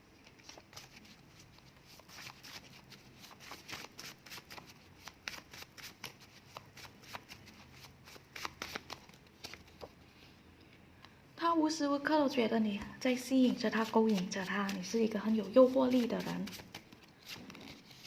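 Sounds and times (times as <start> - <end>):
paper cards shuffling: 0.2 - 10.0, 13.7 - 18.0.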